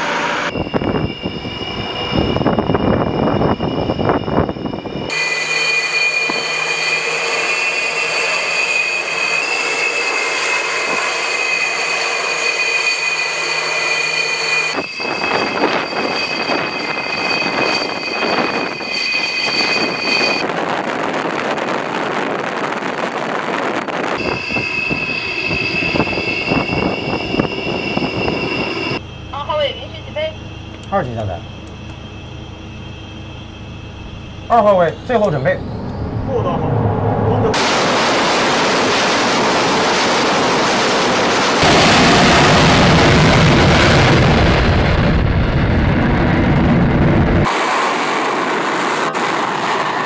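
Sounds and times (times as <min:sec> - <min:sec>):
aircraft engines roaring: 0:00.0 - 0:50.0
high engine whine: 0:00.0 - 0:50.0
wind on microphone: 0:00.5 - 0:05.1, 0:14.7 - 0:29.0.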